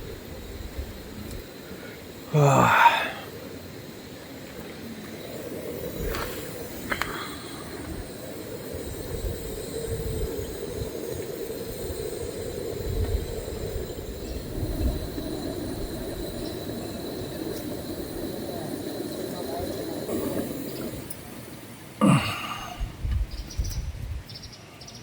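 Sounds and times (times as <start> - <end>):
wind buffeting microphone: 5.2 - 21.6, 22.7 - 24.5.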